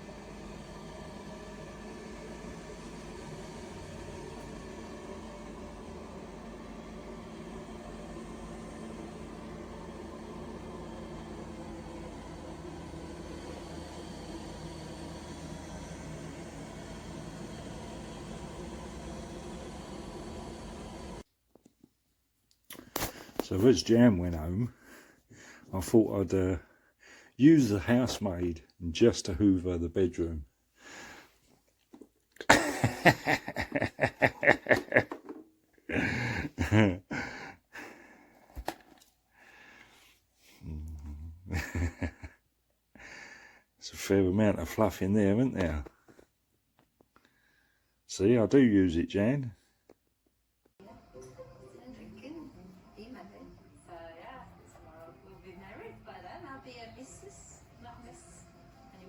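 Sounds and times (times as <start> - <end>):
robot vacuum cleaner humming: 0.0 - 21.2, 32.5 - 39.1
person laughing: 32.4 - 35.3, 35.9 - 37.9, 40.7 - 42.4.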